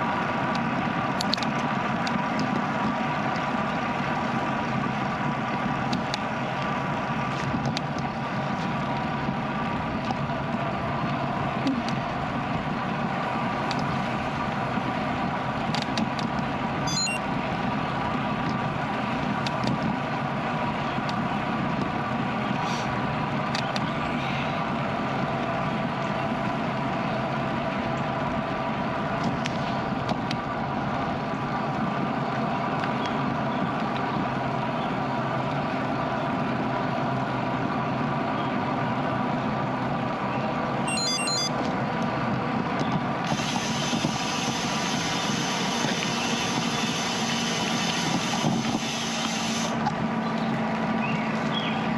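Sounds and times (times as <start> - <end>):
bicycle tyres rolling on road: 0.0 - 40.9, 41.6 - 51.9
brief high chirp: 40.9 - 41.5
wind over microphone: 42.2 - 51.9.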